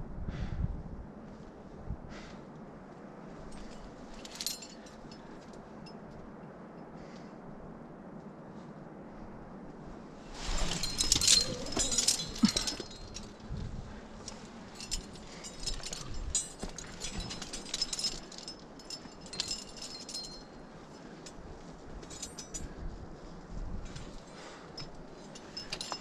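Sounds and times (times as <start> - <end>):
climbing hardware jingling: 3.4 - 6.3, 10.3 - 23.0, 23.8 - 26.0.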